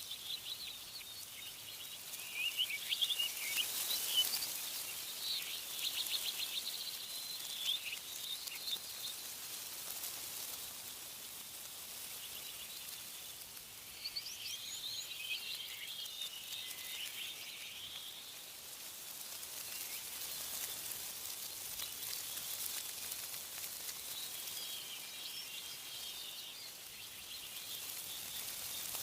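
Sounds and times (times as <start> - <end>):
birds chirping: 0.0 - 9.3, 12.0 - 18.6
wind rustling tree leaves: 0.0 - 29.0.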